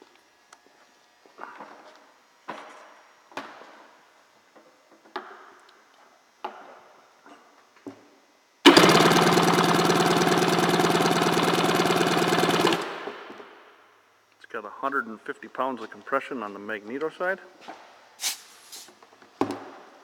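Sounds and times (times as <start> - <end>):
engine cranked by starter: 8.7 - 13.5.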